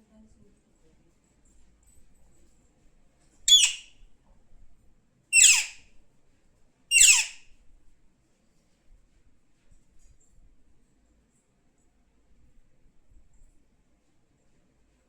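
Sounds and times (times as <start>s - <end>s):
parrot squawking: 3.5s - 3.9s, 5.4s - 5.8s, 6.9s - 7.4s.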